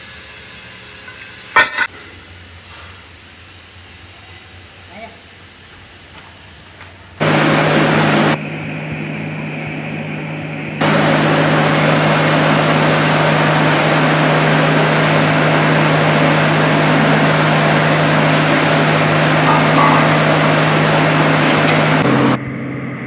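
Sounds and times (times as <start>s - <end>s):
strong low hum: 7.2s - 8.4s, 10.8s - 22.6s
workshop machinery running: 7.2s - 8.4s, 10.8s - 22.4s.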